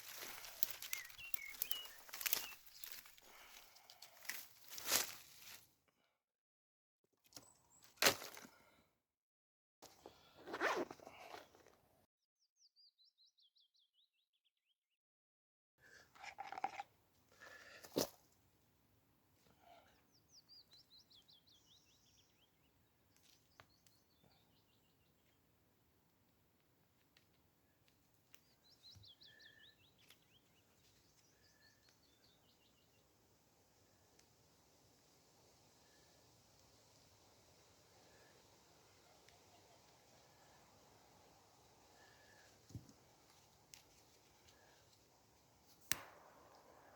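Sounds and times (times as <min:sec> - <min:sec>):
songbird singing: 0:00.0 - 0:03.4, 0:19.9 - 0:25.5, 0:27.7 - 0:33.2
faint songbird song: 0:00.0 - 0:04.8, 0:12.4 - 0:14.8, 0:19.4 - 0:25.6, 0:27.2 - 0:46.9
dry sticks and leaves crunching: 0:00.0 - 0:05.7
stick snapping: 0:45.8 - 0:46.6.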